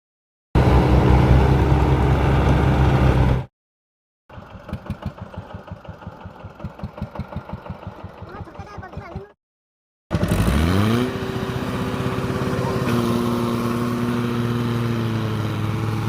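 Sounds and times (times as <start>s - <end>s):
heavy diesel engine running: 0.6s - 3.5s, 4.3s - 9.4s, 10.1s - 16.0s
diesel engine idling: 4.3s - 9.3s, 11.2s - 16.0s.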